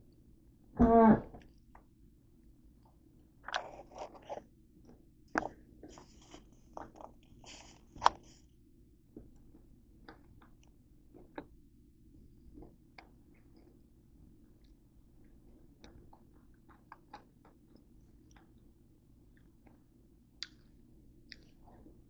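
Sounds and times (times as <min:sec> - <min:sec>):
crunchy pretzel chewing: 0:15.8 - 0:18.7.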